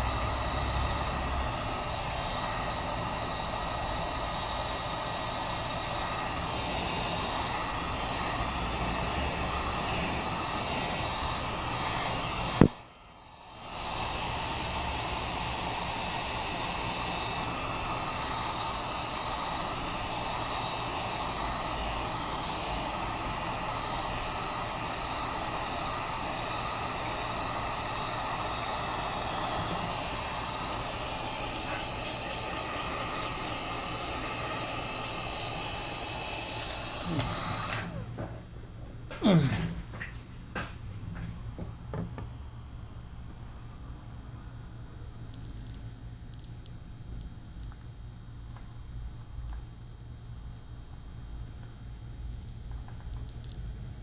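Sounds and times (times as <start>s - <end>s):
heat gun blowing: 0.0s - 38.4s.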